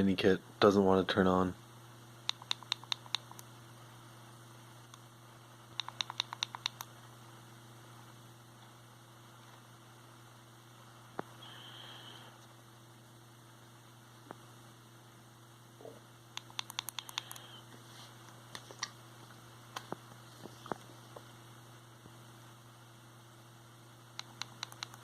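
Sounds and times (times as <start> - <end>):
faint high whine: 0.0 - 18.2
steady low hum: 0.0 - 25.0.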